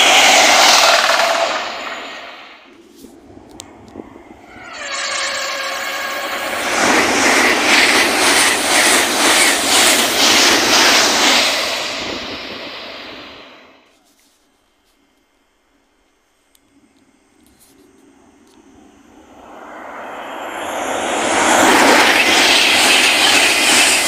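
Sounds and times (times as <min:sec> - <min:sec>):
train rushing past: 0:00.0 - 0:13.9, 0:18.8 - 0:24.0
train horn blast: 0:04.4 - 0:06.6.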